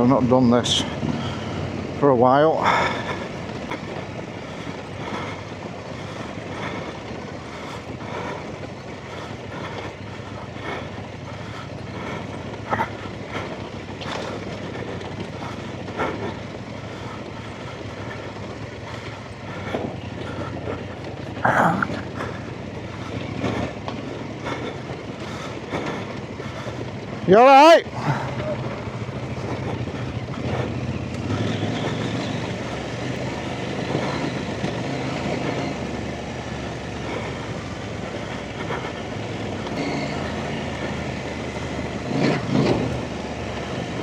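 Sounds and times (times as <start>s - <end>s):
knocks and rattles from bike: 0.0s - 44.0s
motorcycle engine running: 0.0s - 44.0s.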